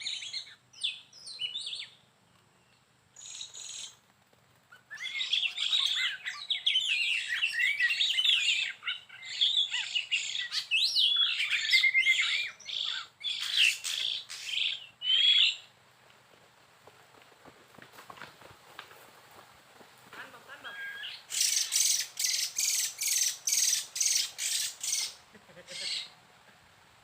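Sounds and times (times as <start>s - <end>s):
songbird singing: 0.0s - 4.1s, 4.7s - 15.8s, 20.2s - 26.6s.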